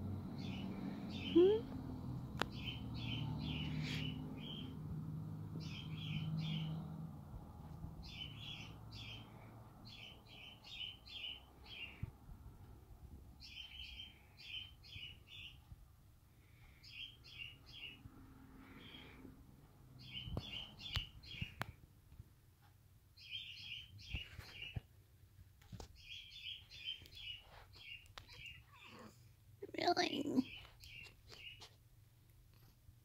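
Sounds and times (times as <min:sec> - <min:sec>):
songbird chirping: 0:00.0 - 0:07.2, 0:07.8 - 0:12.2, 0:13.3 - 0:15.8, 0:16.4 - 0:21.8, 0:23.1 - 0:24.9, 0:25.7 - 0:31.8.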